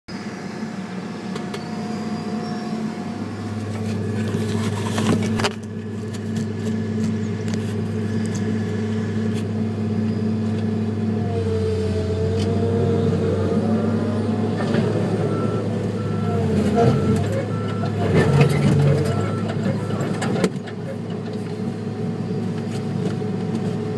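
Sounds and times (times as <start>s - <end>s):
wavering whine: 0.1s - 7.4s
diesel earthmoving machinery running: 0.1s - 23.9s.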